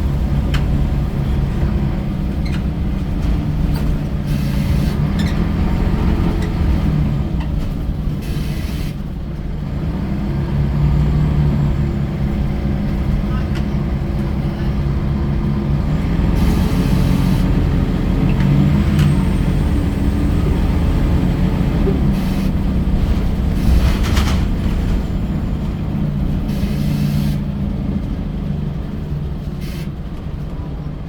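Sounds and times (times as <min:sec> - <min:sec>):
bus diesel engine running: 0:00.0 - 0:31.0
air brake hisses: 0:04.3 - 0:05.0, 0:08.2 - 0:09.0, 0:16.4 - 0:17.6, 0:22.1 - 0:22.6, 0:26.5 - 0:27.5, 0:29.6 - 0:30.0.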